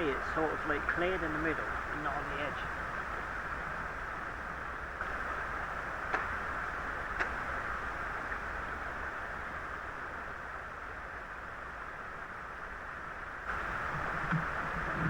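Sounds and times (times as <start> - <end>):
faint clicks: 6.1 - 6.4, 7.1 - 7.4
river water rushing: 13.3 - 15.0.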